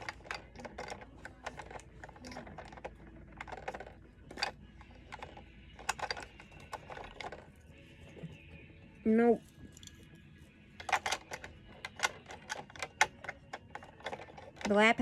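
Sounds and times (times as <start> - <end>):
plastic toy pieces clicking: 0.0 - 7.5, 10.8 - 15.0.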